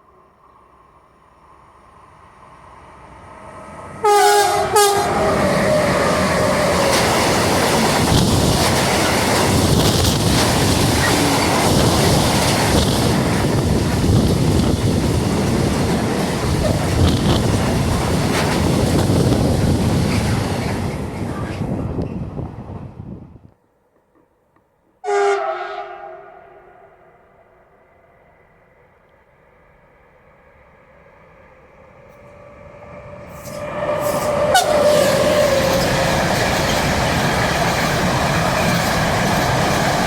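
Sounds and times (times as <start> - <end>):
train wheels rumbling on rails: 1.1 - 23.3, 29.1 - 40.0
train horn blasts: 4.0 - 7.0, 25.0 - 27.6, 33.3 - 35.7.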